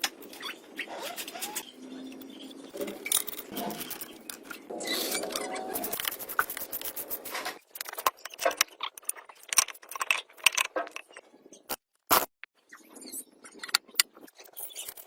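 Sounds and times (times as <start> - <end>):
metal parts scraping: 0.3 - 12.3
metal parts clicking and clinking: 1.0 - 6.2, 7.4 - 12.2.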